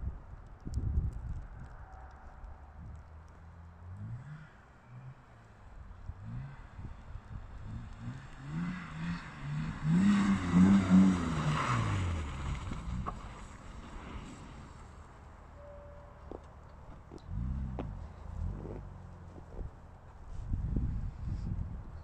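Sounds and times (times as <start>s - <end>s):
car engine revving: 3.8s - 15.3s
tyres spinning on snow: 6.2s - 15.6s.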